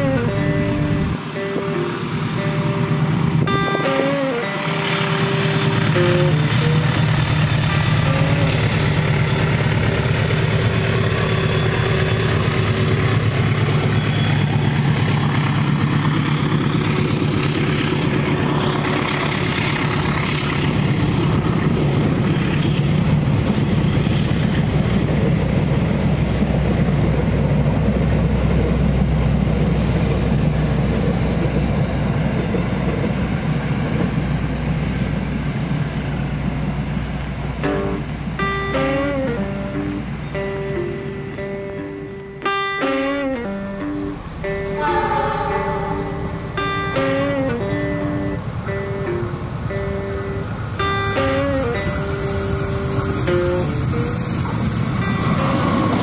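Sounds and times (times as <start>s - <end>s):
diesel engine drone: 0.0s - 56.0s
train wheels rumbling and clattering: 1.7s - 40.8s, 45.5s - 56.0s.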